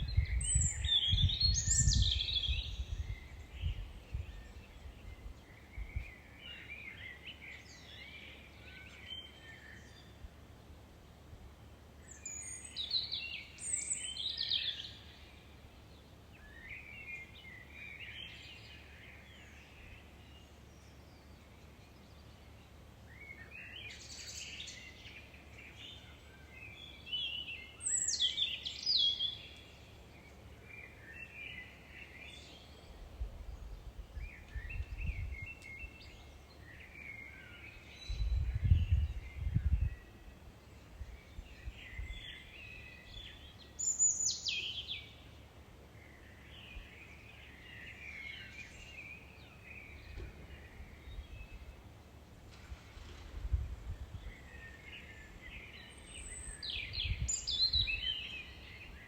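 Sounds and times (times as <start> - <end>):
birds singing: 0.0 - 10.2, 23.2 - 45.4, 54.2 - 59.0.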